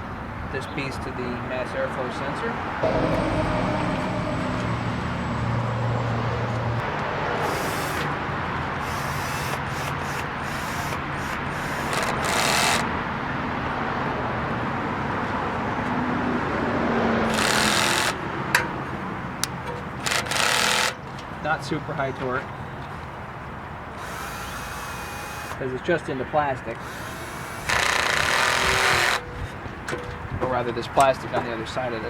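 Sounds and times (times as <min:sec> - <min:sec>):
passing traffic rumble: 0:02.6 - 0:09.0.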